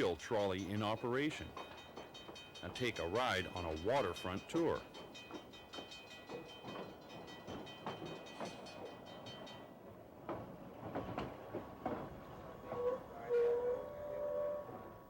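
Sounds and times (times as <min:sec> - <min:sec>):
train clanking on rails: 0:00.0 - 0:15.0
train wheels squealing: 0:12.6 - 0:14.8.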